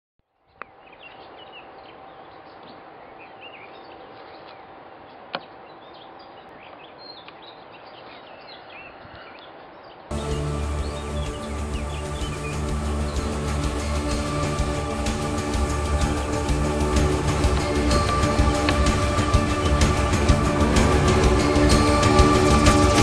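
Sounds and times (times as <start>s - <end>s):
small birds chirping: 0.4s - 23.0s
music: 10.1s - 23.0s
outdoor hiss: 10.1s - 23.0s.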